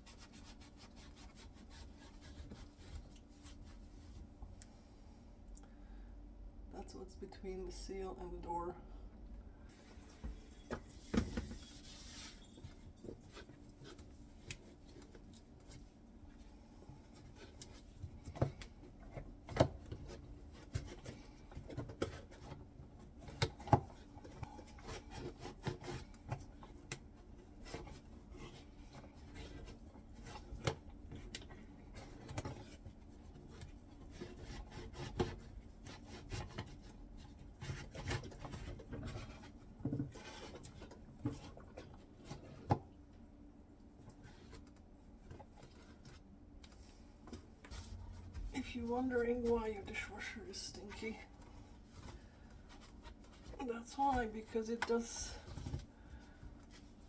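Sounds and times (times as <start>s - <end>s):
scrubbing and scraping: 0.0s - 4.3s.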